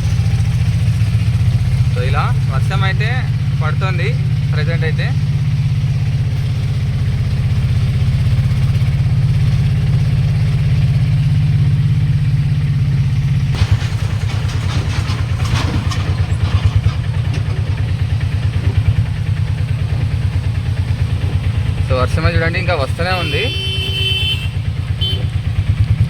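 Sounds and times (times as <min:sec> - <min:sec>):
vehicle engine running: 0:00.0 - 0:26.0
brief rattling: 0:13.5 - 0:19.2.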